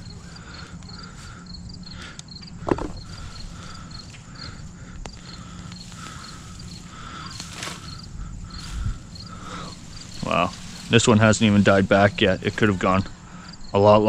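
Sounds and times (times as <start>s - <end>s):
insects chirping: 0.0s - 14.0s
sharp knock: 2.7s - 3.0s.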